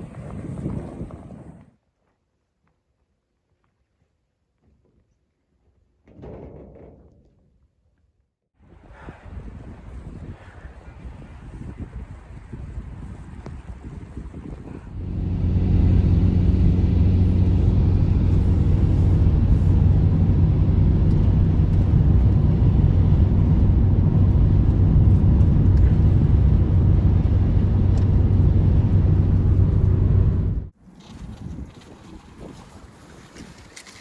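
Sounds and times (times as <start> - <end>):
engine humming steadily: 14.9 - 30.7.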